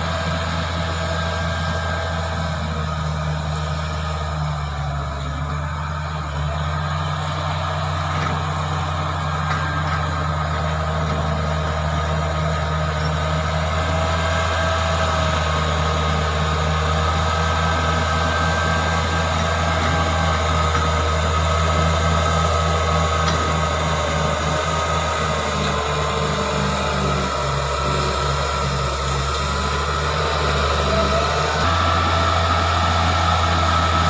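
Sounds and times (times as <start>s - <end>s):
bulldozer diesel engine running: 0.0s - 34.0s.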